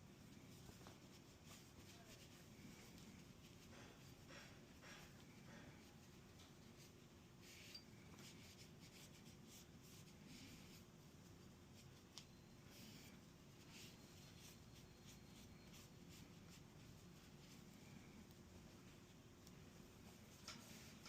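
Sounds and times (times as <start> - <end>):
low steady hum: 0.0 - 21.0
rubbing and handling of pistol parts: 0.4 - 11.0.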